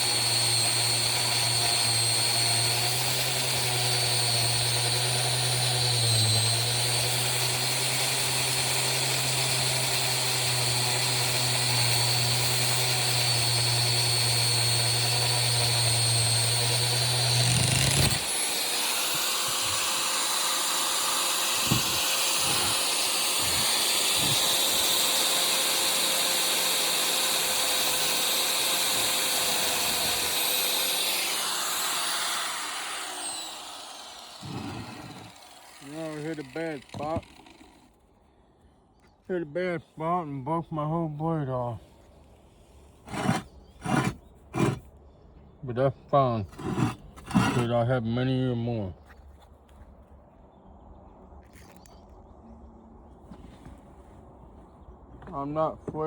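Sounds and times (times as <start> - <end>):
angle grinder cutting metal: 0.0 - 37.8, 43.1 - 44.8, 46.6 - 47.7
grinder motor whine running free: 0.0 - 37.9, 43.1 - 44.8, 46.6 - 47.7
grinder winding down: 0.0 - 37.9, 43.1 - 44.8, 46.6 - 47.7.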